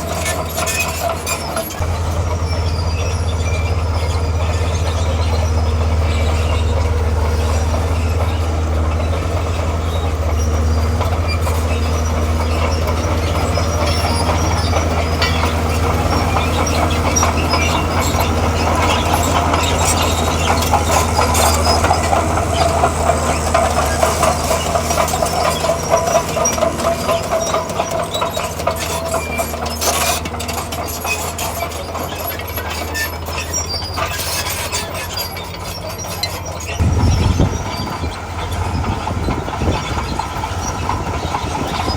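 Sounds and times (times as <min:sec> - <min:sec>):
diesel engine droning: 0:00.0 - 0:41.9
steel tracks clattering and squealing: 0:00.0 - 0:41.9.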